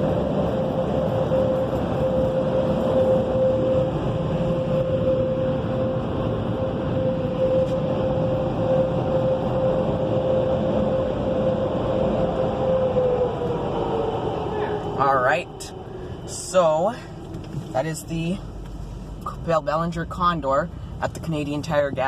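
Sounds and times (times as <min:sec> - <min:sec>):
car wash dryer blowers: 0:00.0 - 0:22.0
steady whine: 0:00.0 - 0:22.0.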